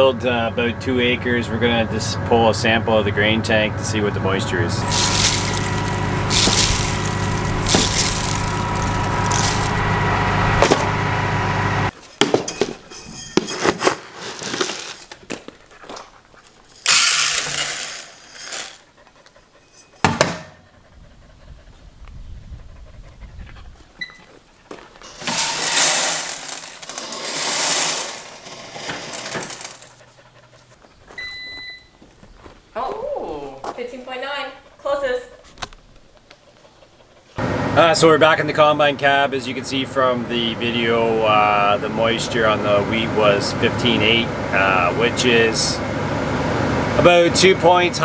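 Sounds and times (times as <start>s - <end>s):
combine harvester running: 0.0s - 11.9s, 16.8s - 18.7s, 25.0s - 30.0s, 37.4s - 48.0s
rustling and handling noises: 4.8s - 10.0s, 12.0s - 18.8s, 24.6s - 30.0s.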